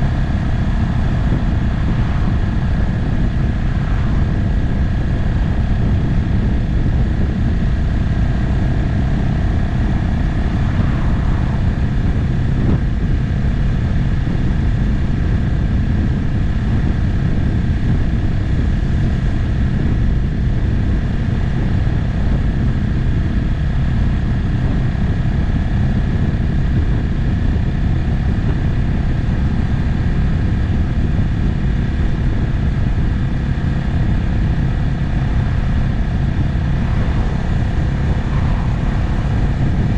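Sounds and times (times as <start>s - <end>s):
road noise: 0.0s - 15.5s, 31.6s - 39.9s
motorcycle engine running: 0.0s - 39.9s
wind rushing: 0.0s - 39.9s.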